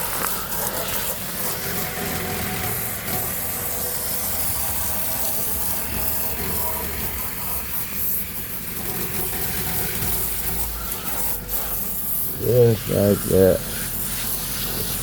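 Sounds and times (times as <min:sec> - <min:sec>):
hose spraying water: 0:00.0 - 0:15.0.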